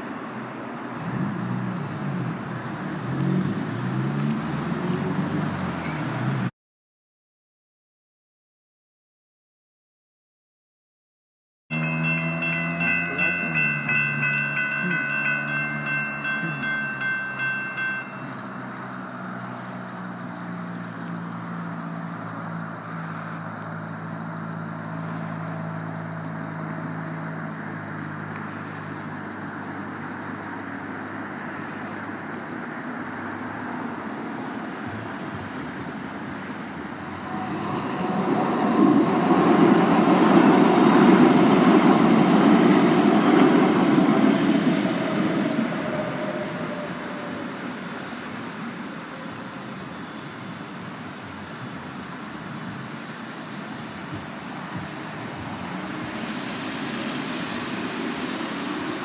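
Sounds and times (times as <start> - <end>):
light rail train rumbling: 0.0 - 6.5, 11.7 - 32.2, 33.2 - 59.0
traffic rumble: 0.0 - 6.5, 11.7 - 59.0
railroad crossing bells ringing: 11.7 - 22.2, 34.3 - 51.7.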